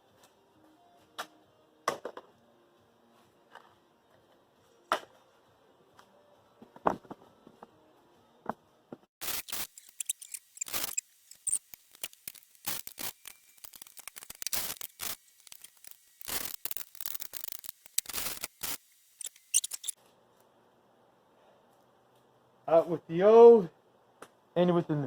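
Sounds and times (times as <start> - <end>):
metal hand tools clicking and scraping: 9.3 - 20.0.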